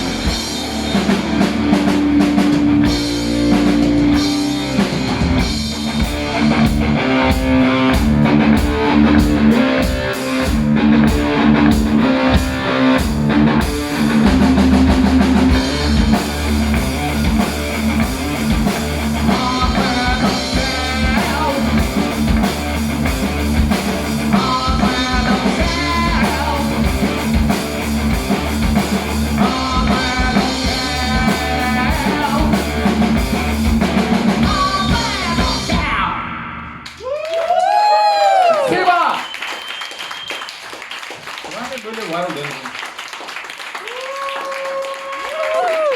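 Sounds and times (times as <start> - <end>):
drum kit: 0.0 - 36.2
distorted electric guitars: 0.0 - 36.8.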